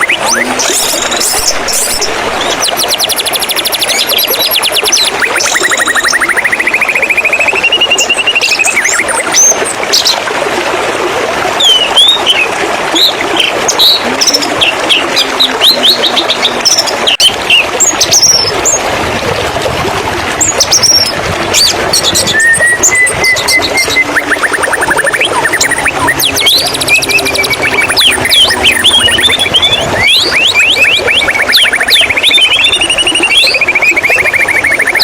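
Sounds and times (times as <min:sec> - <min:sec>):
buzzy bird trill: 0:00.0 - 0:09.4, 0:20.8 - 0:35.0
bird singing whistled notes: 0:00.0 - 0:09.6, 0:20.8 - 0:35.0
flowing water: 0:00.0 - 0:35.0.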